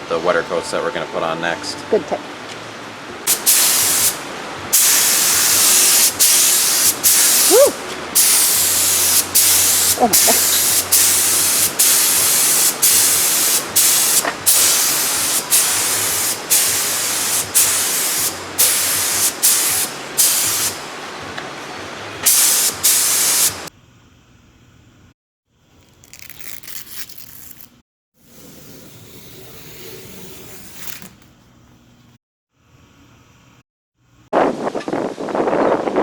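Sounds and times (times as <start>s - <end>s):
paint spray gun hissing: 3.3s - 20.9s, 22.2s - 23.7s.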